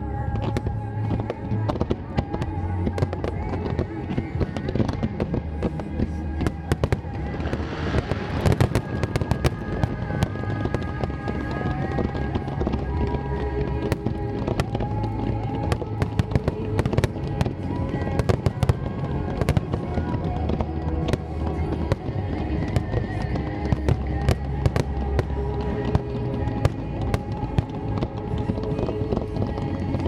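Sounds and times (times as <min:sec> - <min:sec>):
music playing: 0:00.0 - 0:30.0
fireworks bangs and crackles: 0:00.3 - 0:30.0.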